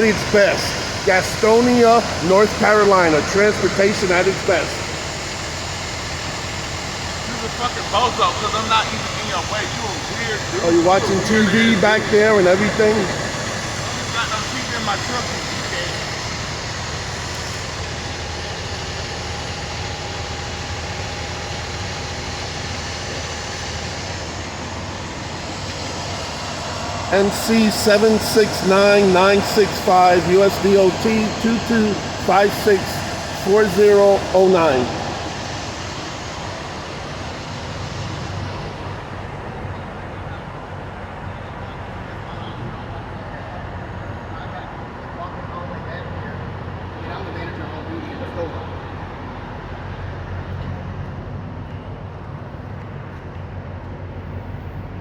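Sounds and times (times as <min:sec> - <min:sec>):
diesel truck engine idling: 0:00.0 - 0:45.2
high hiss: 0:24.8 - 0:39.0.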